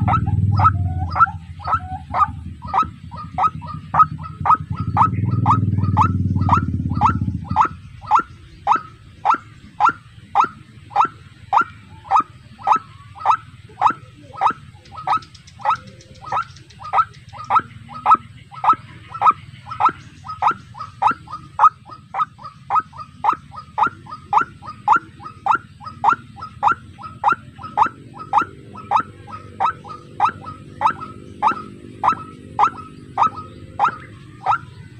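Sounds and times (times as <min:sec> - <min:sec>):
loud low rumble: 0:00.0 - 0:10.9
waterhen calling: 0:00.0 - 0:34.9.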